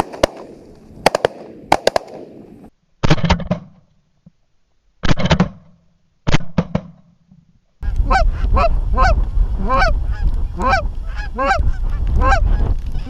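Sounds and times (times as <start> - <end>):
shotgun shots: 0.0 - 3.7
geese honking: 7.8 - 13.0
low wind rumble: 7.8 - 13.0.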